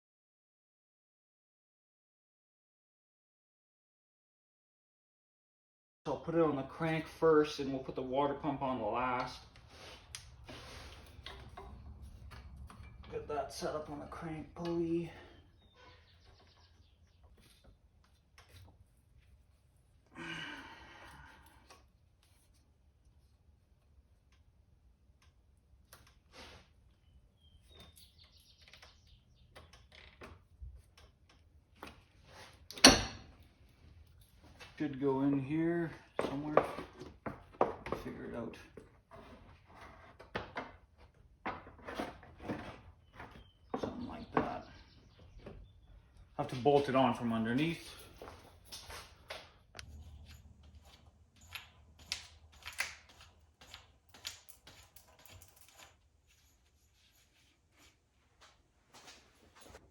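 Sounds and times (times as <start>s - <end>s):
tools and metal parts clicking: 49.8s - 56.6s.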